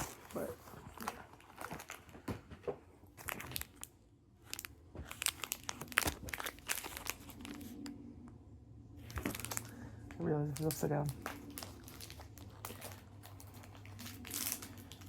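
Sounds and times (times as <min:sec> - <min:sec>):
plastic wrapper crinkling and tearing: 0:00.0 - 0:02.4, 0:03.1 - 0:07.9, 0:09.0 - 0:15.0.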